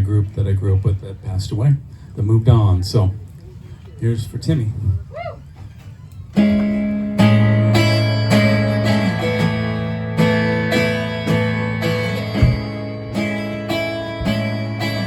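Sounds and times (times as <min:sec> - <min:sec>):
guitar strummed chords: 0:06.4 - 0:15.0.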